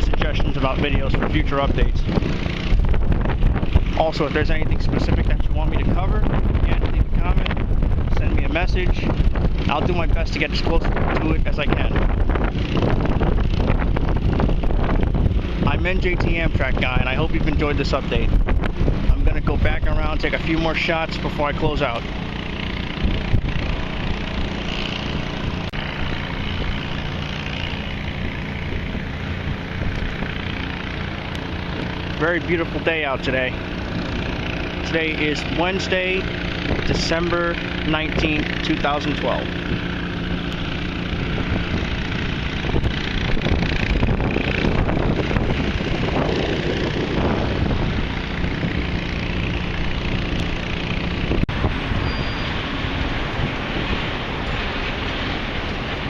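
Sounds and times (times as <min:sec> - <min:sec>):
engine idling: 0:00.0 - 0:56.0
vehicle traffic: 0:00.0 - 0:56.0
wind on microphone: 0:00.0 - 0:56.0.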